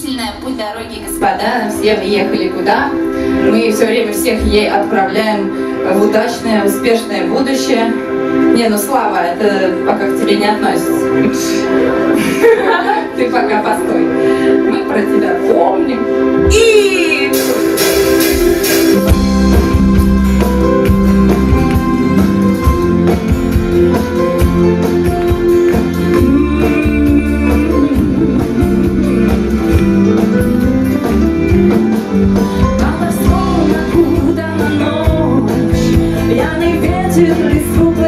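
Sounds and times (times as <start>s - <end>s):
guitar chords: 1.8s - 38.0s
bass notes: 16.3s - 38.0s
drum beat: 17.4s - 34.2s.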